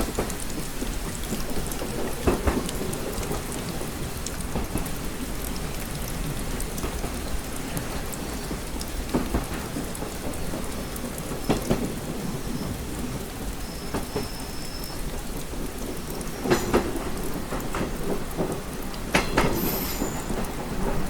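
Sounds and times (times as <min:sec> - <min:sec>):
rain pattering on a window: 0:00.0 - 0:21.0.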